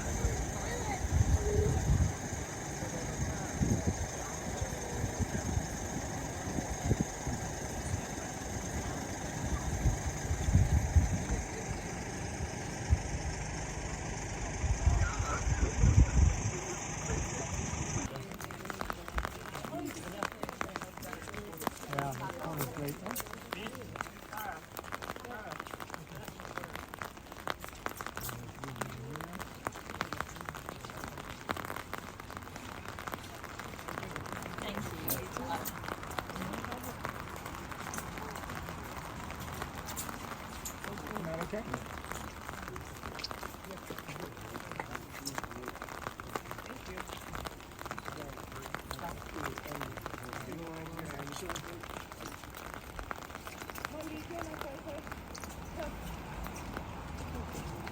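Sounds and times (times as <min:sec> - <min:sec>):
low thumps and bumps: 0:00.0 - 0:18.1
engine and road rumble: 0:00.0 - 0:57.9
rain hitting a surface: 0:00.0 - 0:57.9.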